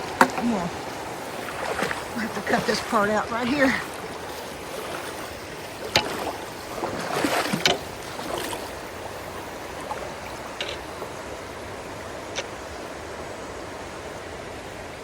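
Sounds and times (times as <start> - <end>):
floodwater rushing: 0.0 - 15.0
water splashing and sloshing: 0.0 - 15.0.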